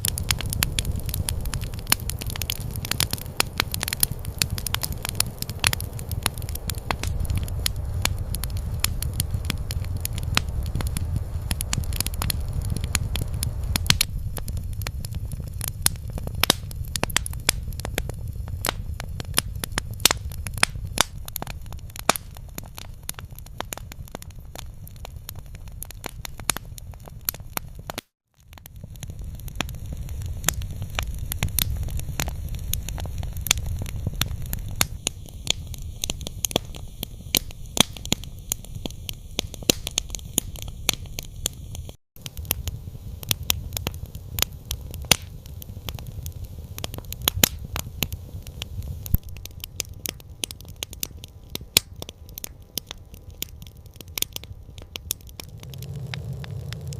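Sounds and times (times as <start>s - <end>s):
steady low rumble: 0.0s - 24.3s, 54.8s - 56.9s
campfire crackling and popping: 0.0s - 56.9s.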